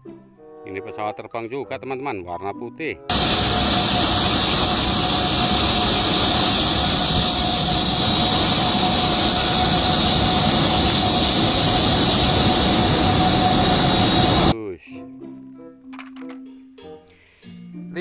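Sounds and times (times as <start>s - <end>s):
jet engine whine: 3.1s - 14.6s.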